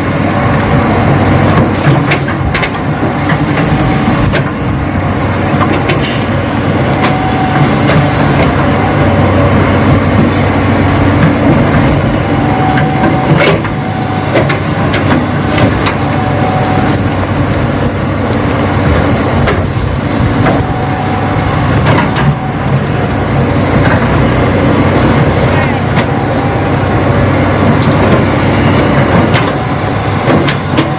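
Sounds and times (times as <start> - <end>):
engine-like hum: 0.0 - 30.9
motors whining: 5.5 - 30.9.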